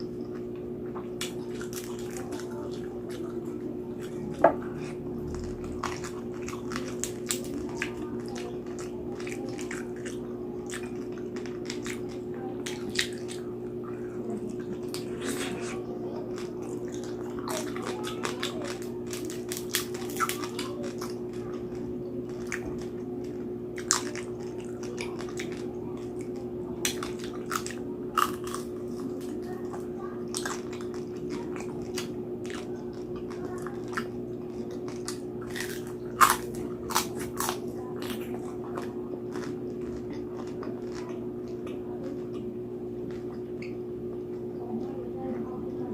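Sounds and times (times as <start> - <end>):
chewing and crunching crispy food: 0.0 - 45.8
steady low hum: 0.0 - 45.9.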